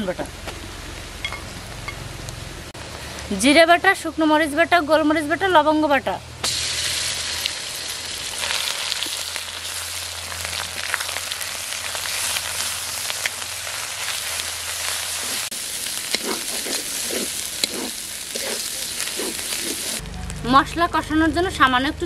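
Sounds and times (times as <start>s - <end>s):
spice paste sizzling in oil: 6.4s - 20.0s
metal spatula scraping pan: 16.1s - 20.0s.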